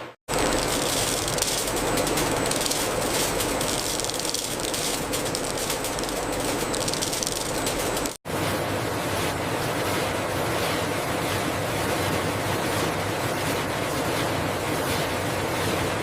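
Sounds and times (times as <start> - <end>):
machinery rattling: 0.3 - 8.2.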